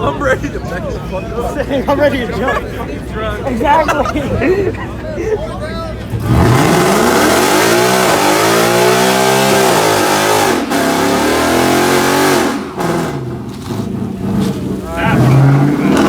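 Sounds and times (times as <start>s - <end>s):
car engine revving hard: 6.0s - 16.0s.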